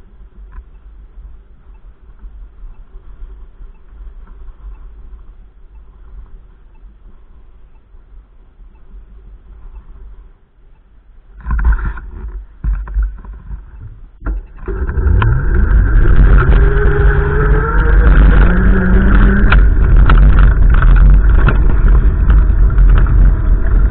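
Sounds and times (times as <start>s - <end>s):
wind buffeting microphone: 11.3s - 23.9s
vehicle engine accelerating: 14.3s - 23.9s.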